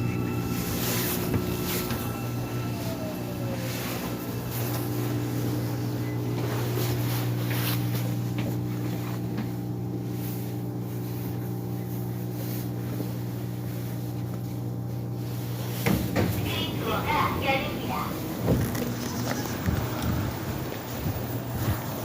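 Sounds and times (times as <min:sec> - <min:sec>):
subway train hum: 0:00.0 - 0:22.0.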